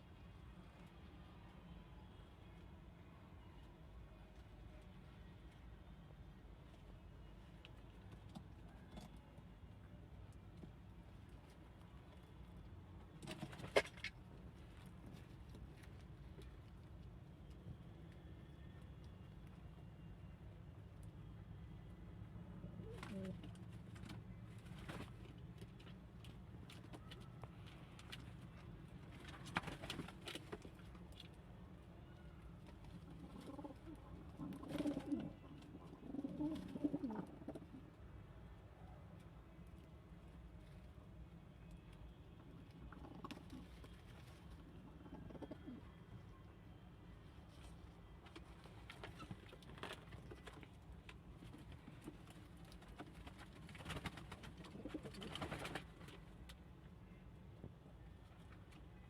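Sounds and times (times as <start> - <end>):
pigeons cooing: 22.8 - 23.4, 33.2 - 37.8, 44.8 - 45.9.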